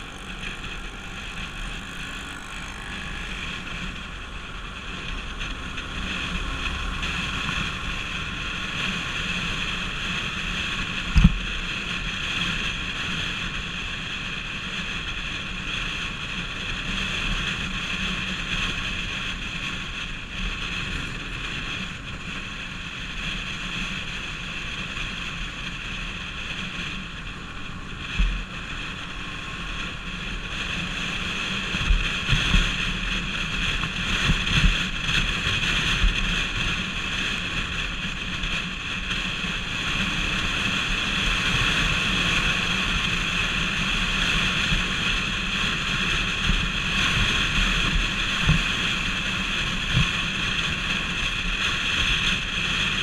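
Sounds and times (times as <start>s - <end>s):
motorcycle engine running: 0.0s - 53.0s
wind rush on microphone: 0.0s - 53.0s.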